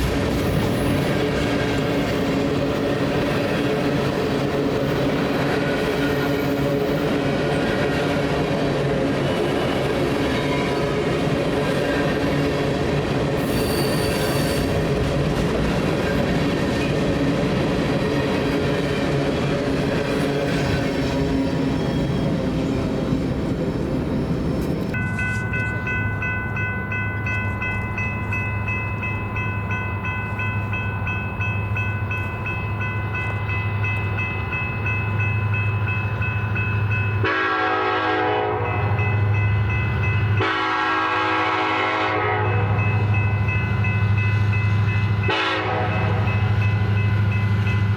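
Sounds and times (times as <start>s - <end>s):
diesel locomotive drone: 0.0s - 47.9s
freight train wheel and rail noise: 0.0s - 47.9s
locomotive horn blasts: 37.2s - 39.0s, 40.3s - 42.8s, 45.2s - 46.4s.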